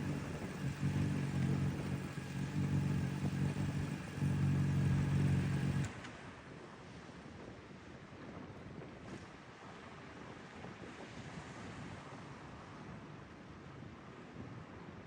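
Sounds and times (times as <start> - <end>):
airplane engine drone: 0.0 - 5.9.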